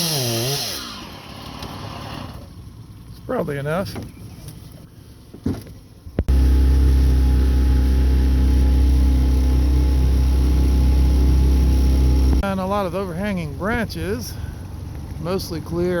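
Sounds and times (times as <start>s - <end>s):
outboard motor running: 6.3s - 16.0s.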